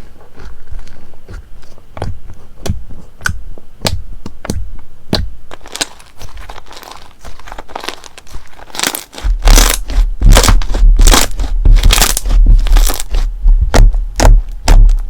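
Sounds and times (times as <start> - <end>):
slime squeezed popping: 7.7 - 15.0.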